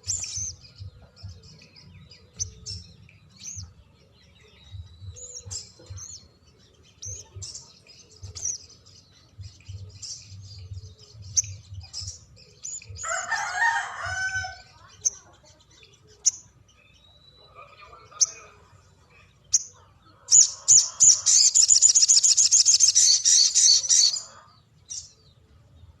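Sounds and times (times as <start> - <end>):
songbird chirps and trill: 0.0 - 26.0.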